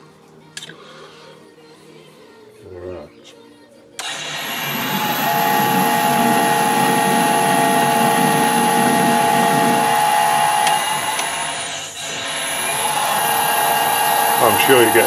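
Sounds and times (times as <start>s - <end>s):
gear train whining: 4.0s - 15.0s
metal lathe running: 4.0s - 15.0s.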